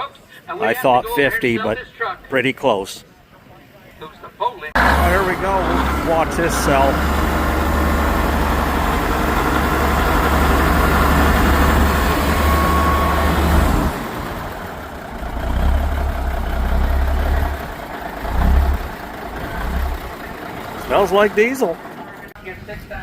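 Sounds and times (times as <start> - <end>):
diesel engine idling: 4.8 - 23.0.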